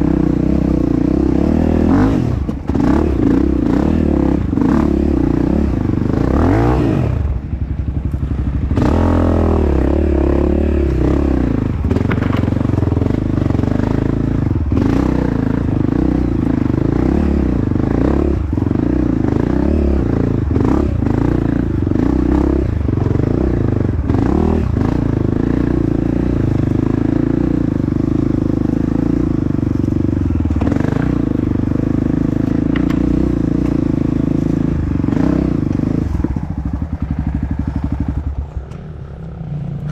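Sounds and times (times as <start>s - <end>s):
dirt bike engine revving: 0.0s - 38.5s
bike clattering over rough ground: 11.8s - 12.9s.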